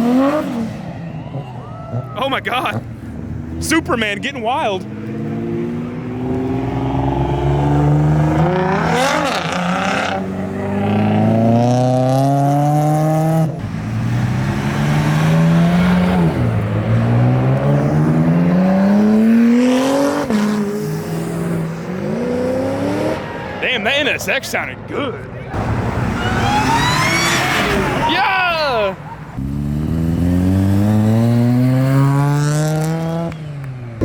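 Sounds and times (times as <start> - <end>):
car engine accelerating through gears: 4.9 - 23.3, 29.3 - 34.0.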